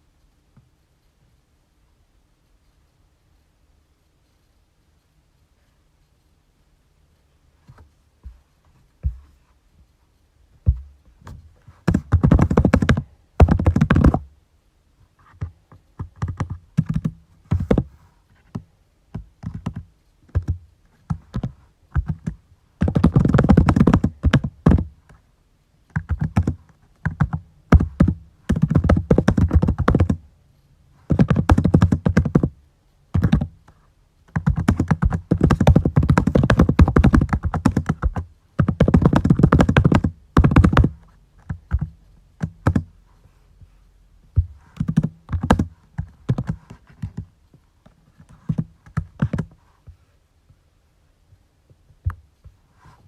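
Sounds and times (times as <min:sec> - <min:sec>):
typing on keyboard: 0:15.4 - 0:17.8, 0:19.4 - 0:24.9, 0:26.0 - 0:30.2, 0:31.1 - 0:32.5, 0:33.2 - 0:33.5, 0:34.4 - 0:42.9, 0:44.8 - 0:47.2.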